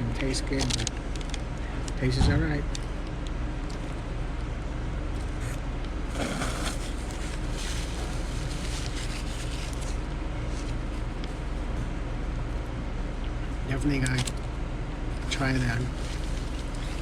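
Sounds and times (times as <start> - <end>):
steady low hum: 0.0 - 17.0
takeout bowl and fork scraping: 6.1 - 10.0.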